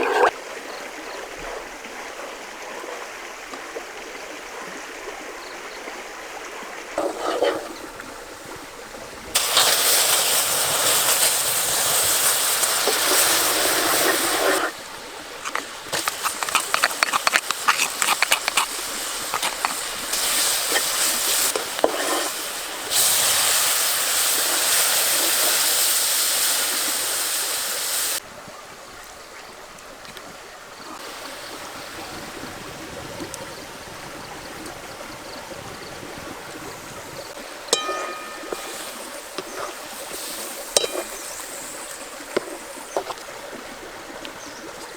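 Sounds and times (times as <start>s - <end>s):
running stream: 0.0s - 44.9s
water splashing and pouring: 6.9s - 28.2s, 37.3s - 44.9s
splashy clatter: 9.4s - 14.8s.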